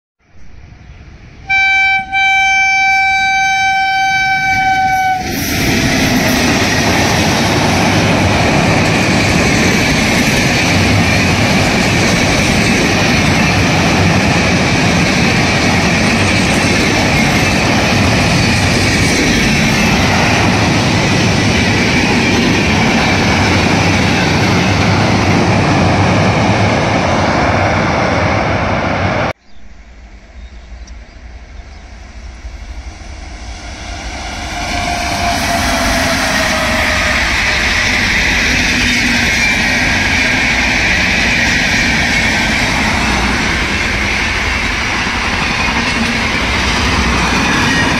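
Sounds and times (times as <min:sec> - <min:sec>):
locomotive horn: 0:01.4 - 0:05.4.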